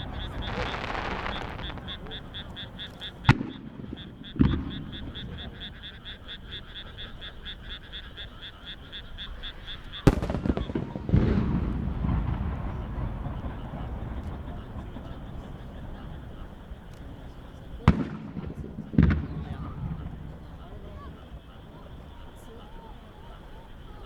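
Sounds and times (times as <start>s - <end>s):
firework shells bursting: 0.0s - 5.5s, 10.0s - 14.8s
frogs calling: 0.0s - 24.0s.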